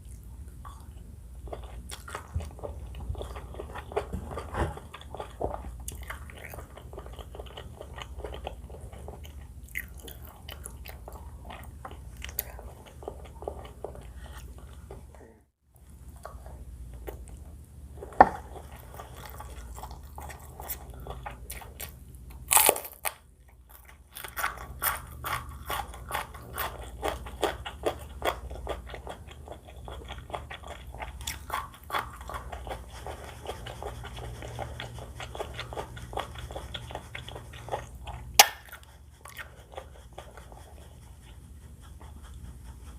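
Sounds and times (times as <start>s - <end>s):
crunchy chewing: 0.0s - 15.1s, 16.2s - 42.9s.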